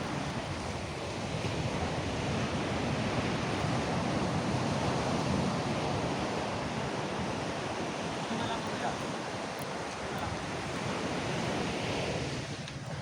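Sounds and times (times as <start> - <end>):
sea surf washing onto beach: 0.0 - 13.0
wind buffeting microphone: 0.0 - 13.0.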